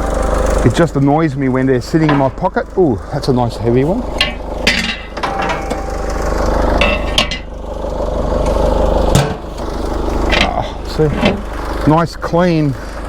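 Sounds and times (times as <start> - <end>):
low engine hum: 0.0 - 13.0
metal scrap clanking: 2.0 - 2.5, 4.1 - 7.6, 8.4 - 11.9.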